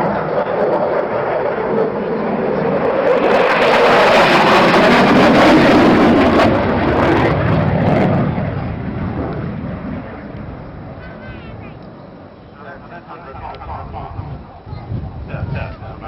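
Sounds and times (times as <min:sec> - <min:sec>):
aircraft flying past: 0:00.0 - 0:16.0.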